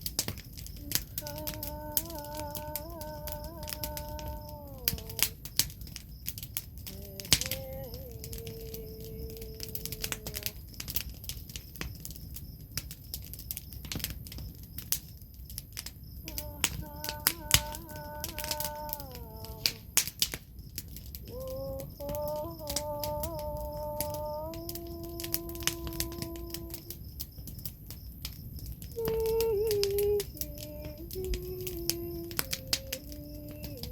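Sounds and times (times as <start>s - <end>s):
wood fire crackling: 0.0s - 33.9s
woman humming: 0.8s - 5.4s, 6.8s - 10.6s, 16.2s - 20.0s, 21.2s - 27.0s, 29.0s - 33.9s.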